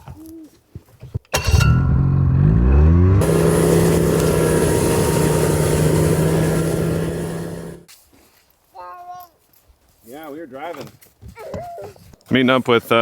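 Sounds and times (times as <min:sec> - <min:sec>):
snowmobile engine revving: 0:01.5 - 0:07.9.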